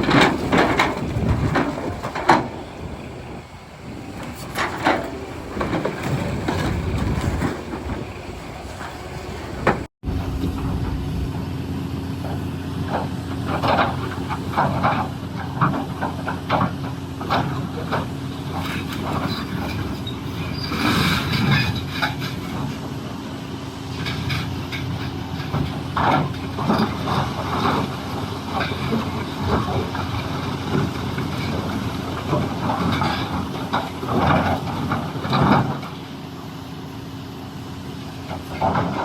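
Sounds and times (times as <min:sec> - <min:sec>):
rock scraping steel bucket: 0:00.0 - 0:11.4
excavator engine droning: 0:00.0 - 0:39.0.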